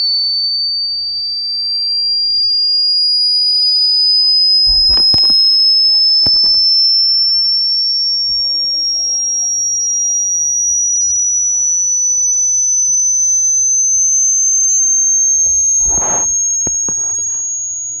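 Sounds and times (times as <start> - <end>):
high-pitched electronic tone: 15.4 - 18.0.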